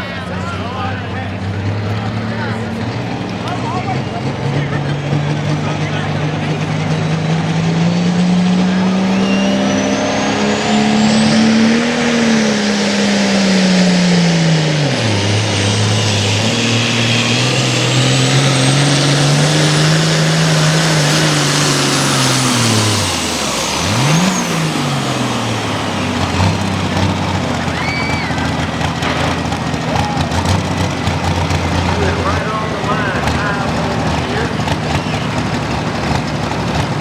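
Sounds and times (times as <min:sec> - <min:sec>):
tractor engine at full throttle: 0:00.0 - 0:37.0
high whistle: 0:08.9 - 0:11.4.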